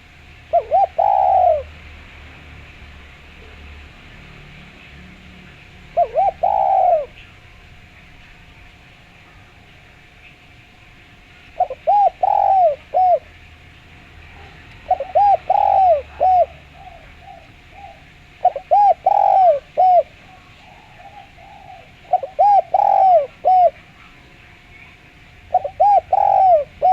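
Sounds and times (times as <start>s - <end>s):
dove cooing: 0.0s - 2.0s, 5.5s - 7.5s, 11.2s - 26.9s
faint high bird chirps: 14.2s - 26.9s.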